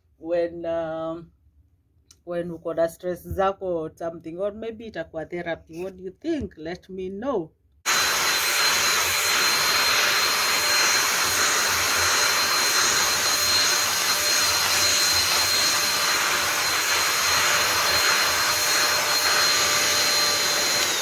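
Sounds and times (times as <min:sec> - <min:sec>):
high-pitched motor whine: 0:07.9 - 0:21.0
vacuum blower rushing air: 0:07.9 - 0:21.0.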